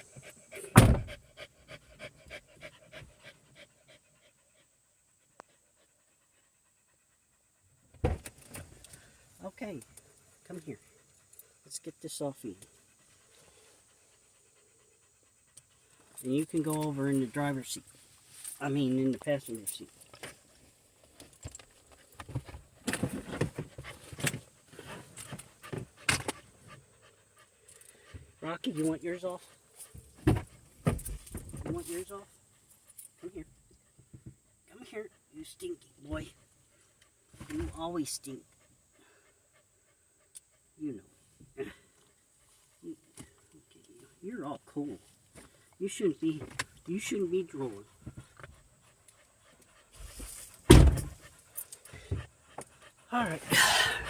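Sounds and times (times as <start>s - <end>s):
dog panting: 0.0s - 8.0s, 10.0s - 17.9s, 23.0s - 30.8s, 47.0s - 54.0s
loud thump: 0.8s - 1.2s, 50.7s - 51.2s
dog moving inside a car: 16.0s - 26.8s, 28.7s - 32.2s, 45.0s - 53.5s
rustling: 47.9s - 53.5s.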